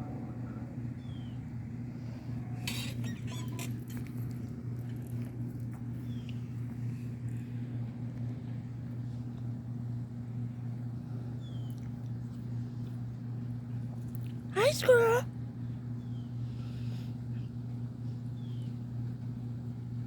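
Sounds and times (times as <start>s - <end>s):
low hum: 0.0s - 14.5s.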